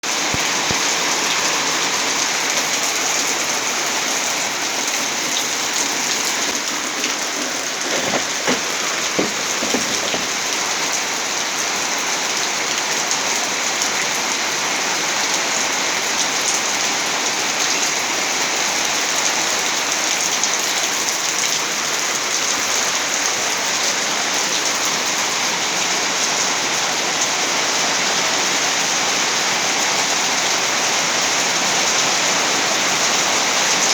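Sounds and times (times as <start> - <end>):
loud rain falling: 0.1 - 33.9
short knocks: 7.8 - 10.4.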